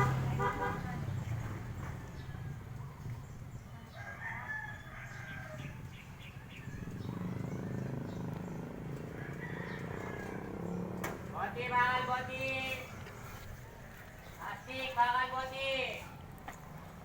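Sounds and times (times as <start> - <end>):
rooster crowing: 3.9 - 7.3, 8.9 - 10.8.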